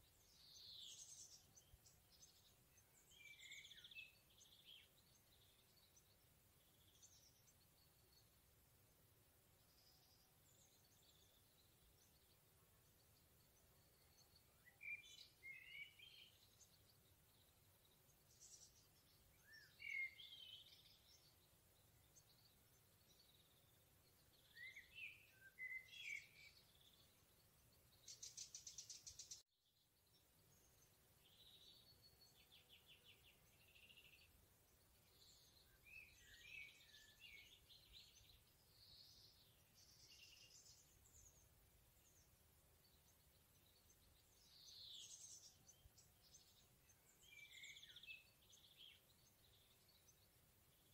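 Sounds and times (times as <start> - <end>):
songbirds singing: 0.0 - 50.9.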